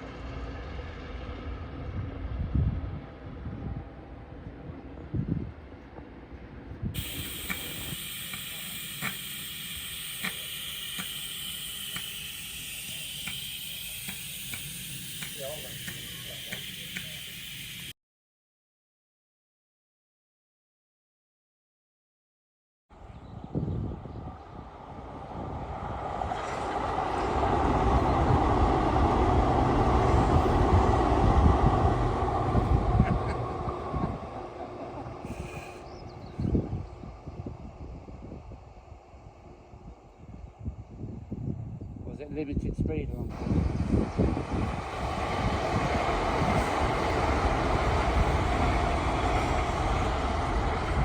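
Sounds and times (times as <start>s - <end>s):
train rumbling: 0.0s - 17.9s, 23.0s - 51.0s
steady hiss: 7.0s - 18.0s.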